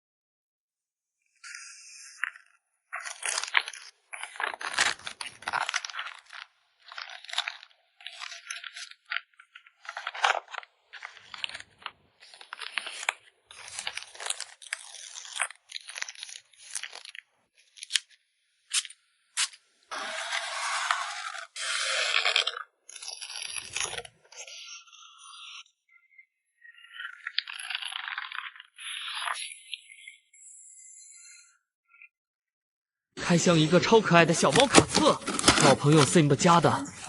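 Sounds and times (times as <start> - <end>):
plastic packaging crinkling: 3.0 - 18.2, 34.4 - 37.0.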